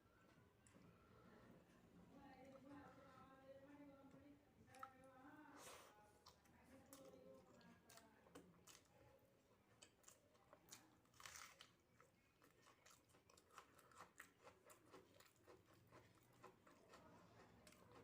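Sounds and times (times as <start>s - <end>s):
person chewing soft food: 5.6s - 18.0s.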